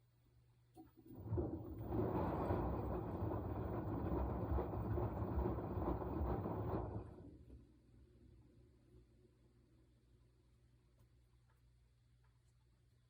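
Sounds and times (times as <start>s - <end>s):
washing machine churning: 0.8s - 8.4s.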